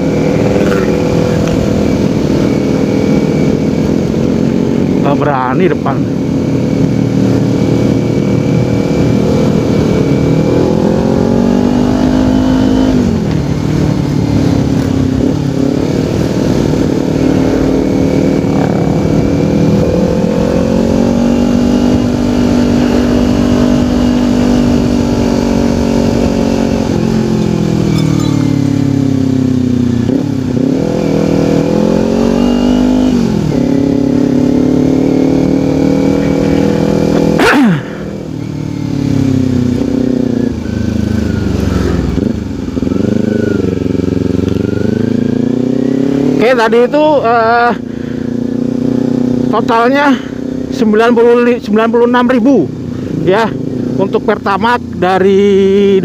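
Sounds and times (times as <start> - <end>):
motorcycle engine pulling through gears: 16.1 - 33.2.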